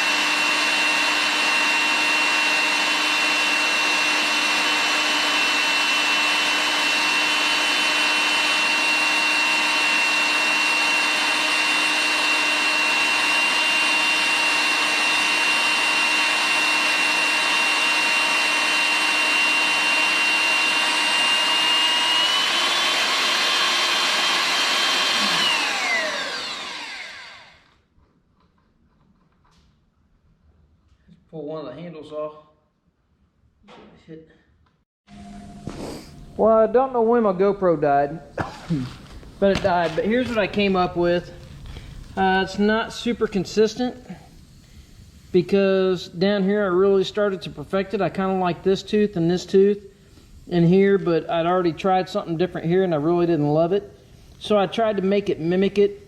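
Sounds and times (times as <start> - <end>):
power tool motor whining: 0.0 - 27.8.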